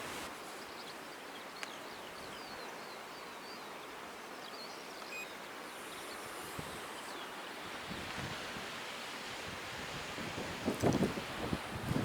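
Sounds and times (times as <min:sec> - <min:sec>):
sea: 0:00.0 - 0:12.0
wind: 0:00.0 - 0:12.0
small birds chirping: 0:00.3 - 0:08.0.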